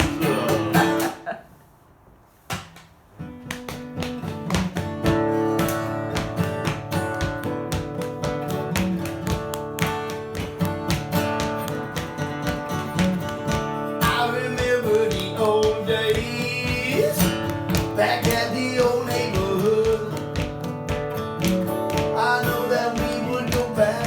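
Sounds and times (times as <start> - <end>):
acoustic guitar strumming: 0.0 - 1.4, 3.2 - 24.0.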